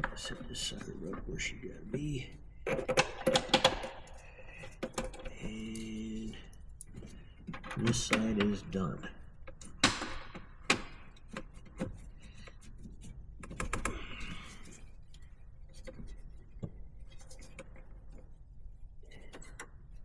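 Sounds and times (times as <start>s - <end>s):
tools clicking and knocking: 2.6s - 18.4s.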